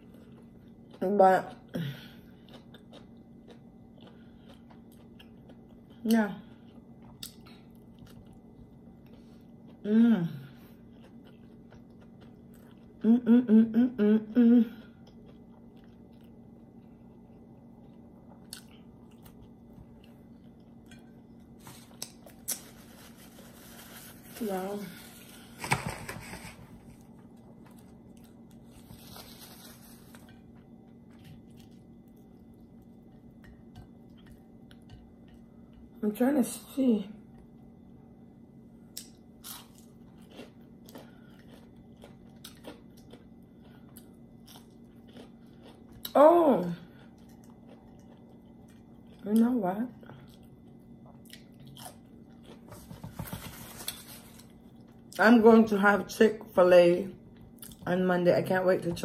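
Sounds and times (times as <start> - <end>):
person chewing: 2.2 - 9.8, 10.6 - 13.2, 14.9 - 24.0, 26.2 - 35.9, 38.9 - 46.2, 46.9 - 49.2, 50.1 - 55.2
person humming mm: 9.8 - 10.5, 13.0 - 14.9.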